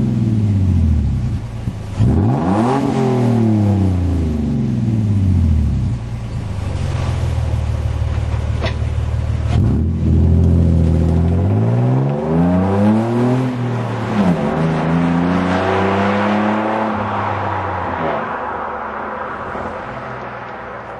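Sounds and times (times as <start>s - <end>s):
truck engine revving: 1.9s - 4.0s.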